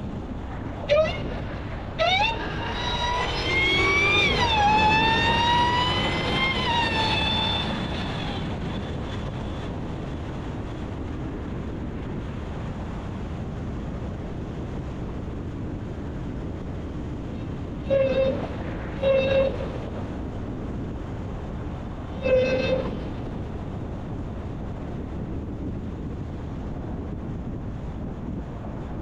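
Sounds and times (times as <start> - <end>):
supercharger whine: 0.0 - 28.9
engine and road noise: 0.0 - 29.0
car horn honking: 17.9 - 19.7.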